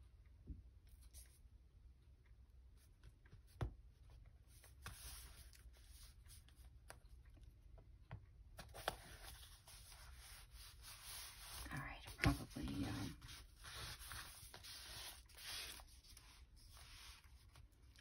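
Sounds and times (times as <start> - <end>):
paper pages rustling: 8.5 - 18.0.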